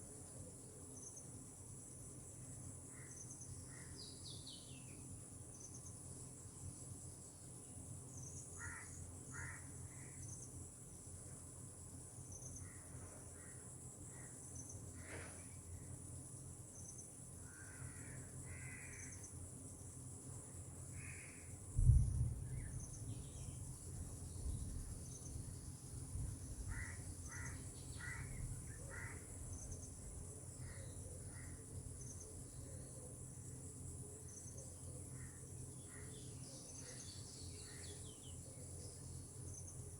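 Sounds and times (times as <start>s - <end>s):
high insect trill: 15.5s - 39.9s
wind rumble on microphone: 21.7s - 27.0s.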